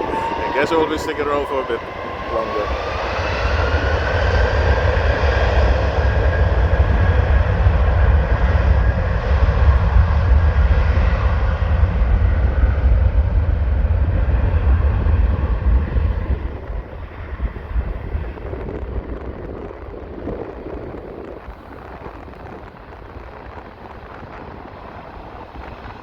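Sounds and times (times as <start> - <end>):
jet engines at takeoff: 0.0 - 26.0.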